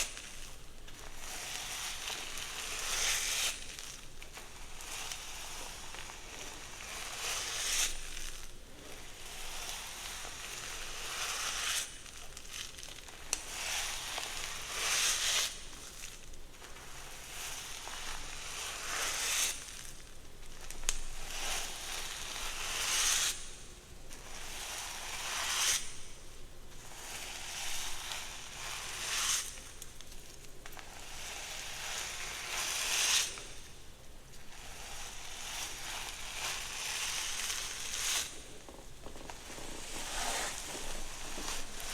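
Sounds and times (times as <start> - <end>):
hair being brushed: 34.6 - 41.9.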